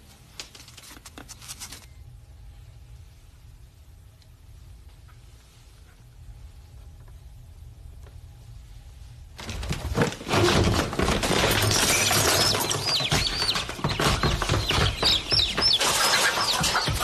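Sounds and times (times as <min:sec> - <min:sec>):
rustling fluttering wings: 0:09.4 - 0:17.0
fowl squawking: 0:15.6 - 0:17.0.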